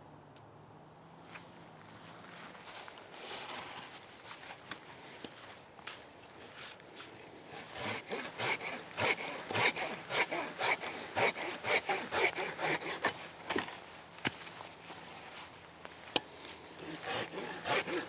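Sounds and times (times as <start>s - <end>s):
hand saw cutting wood: 6.4s - 13.8s, 16.8s - 18.0s.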